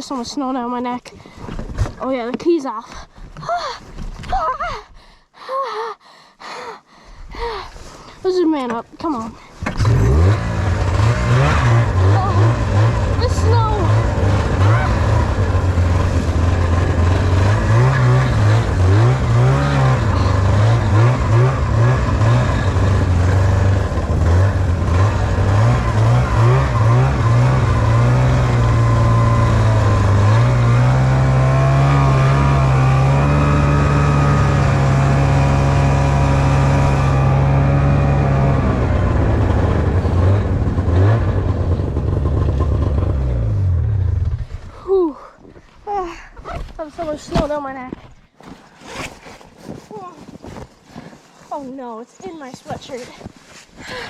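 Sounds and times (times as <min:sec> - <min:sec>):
snowmobile engine revving: 0:09.7 - 0:45.0.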